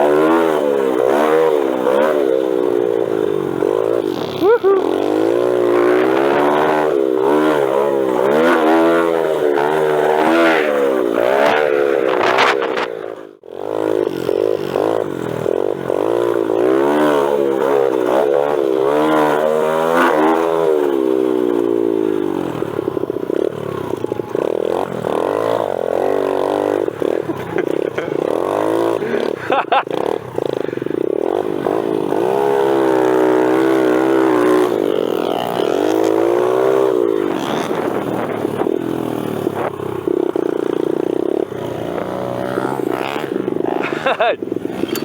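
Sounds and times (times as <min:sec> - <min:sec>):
motorbike engine revving: 0:00.0 - 0:45.0.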